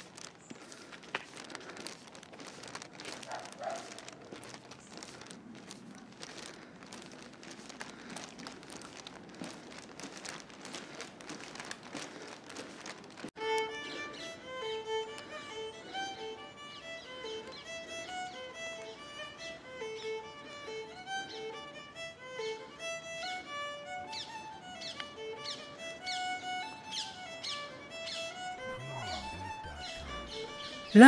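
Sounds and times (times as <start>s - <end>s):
dense crackling and rustling: 0.0s - 13.4s
violin music: 13.4s - 30.9s.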